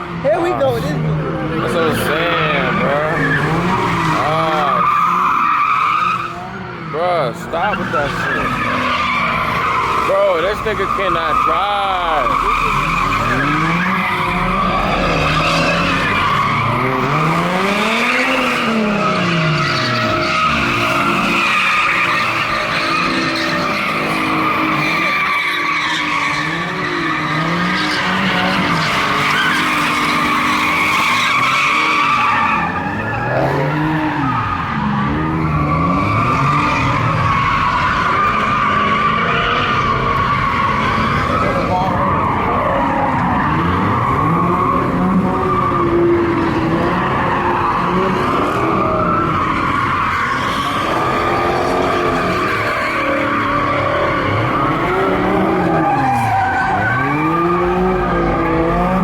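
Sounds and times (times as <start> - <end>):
car engine revving: 0.0 - 59.0
car tyres squealing: 0.0 - 59.0.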